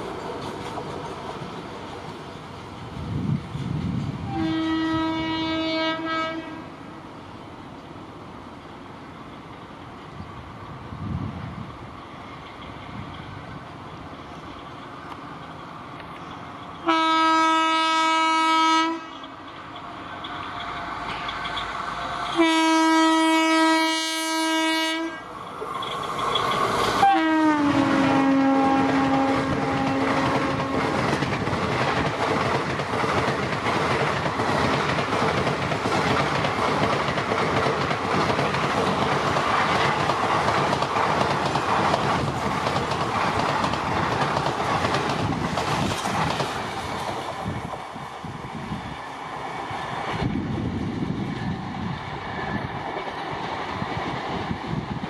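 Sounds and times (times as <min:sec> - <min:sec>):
train wheel clatter: 0:00.0 - 0:05.0, 0:09.2 - 0:18.3, 0:19.0 - 0:24.7, 0:25.3 - 0:55.0
train horn blasts: 0:04.2 - 0:06.7, 0:16.8 - 0:19.2, 0:22.3 - 0:25.3, 0:27.0 - 0:31.0.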